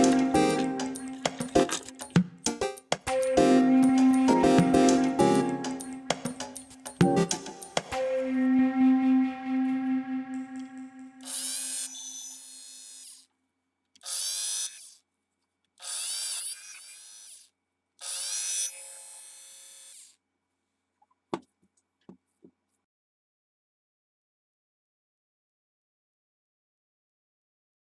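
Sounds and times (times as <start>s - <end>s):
rotary tool motor whine: 11.2s - 13.3s, 14.0s - 15.0s, 15.8s - 20.2s.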